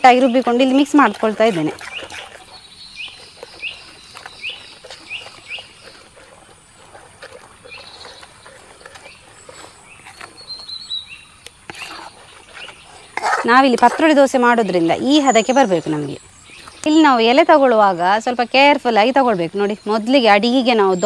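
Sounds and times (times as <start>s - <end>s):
bird chirping: 0.0s - 6.4s, 7.6s - 21.0s
batter being mixed: 0.0s - 16.2s.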